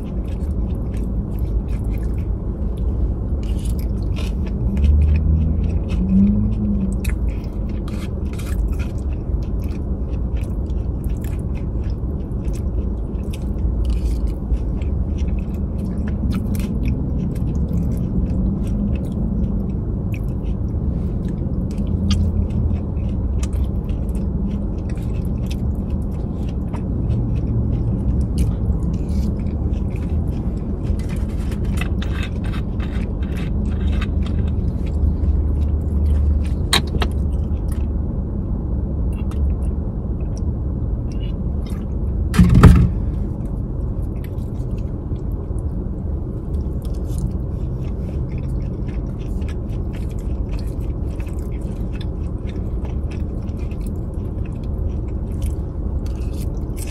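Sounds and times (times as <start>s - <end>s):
close chewing: 0.0s - 38.4s, 39.0s - 56.9s
low rumble: 0.0s - 56.9s
loud thump: 42.3s - 43.1s.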